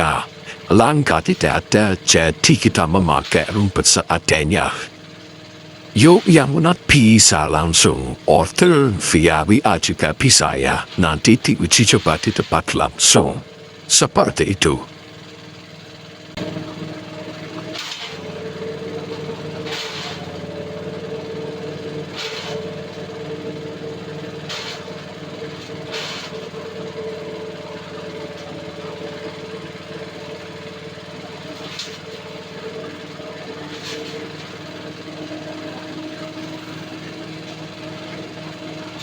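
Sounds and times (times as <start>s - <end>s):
blades cutting stalks: 0.0s - 4.9s, 5.9s - 14.8s, 17.5s - 20.5s, 22.0s - 23.0s, 24.2s - 27.2s, 31.2s - 39.0s
forage chopper running: 0.0s - 39.0s.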